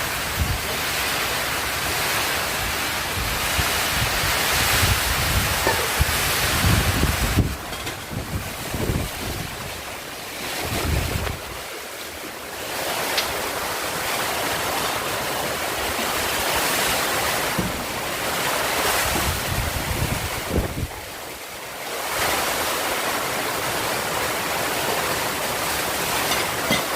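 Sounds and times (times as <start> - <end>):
heavy rain hissing: 0.0 - 26.9
strong wind gusting: 2.5 - 11.7, 15.7 - 21.2
wind buffeting microphone: 2.6 - 11.7, 16.9 - 21.2.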